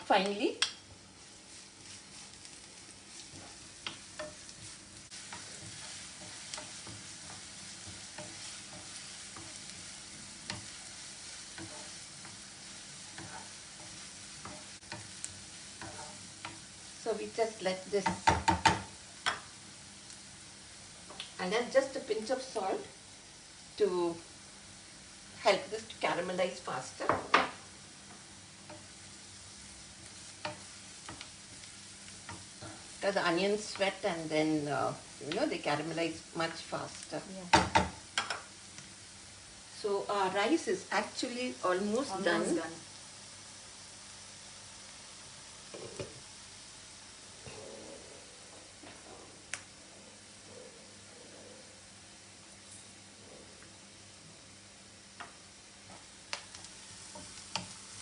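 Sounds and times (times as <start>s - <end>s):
onions sizzling in oil: 0.0s - 58.0s
stirring clicks in pan: 0.2s - 0.8s, 3.2s - 12.4s, 18.0s - 20.2s, 21.1s - 21.4s, 30.0s - 32.9s, 37.5s - 38.9s, 56.3s - 57.8s.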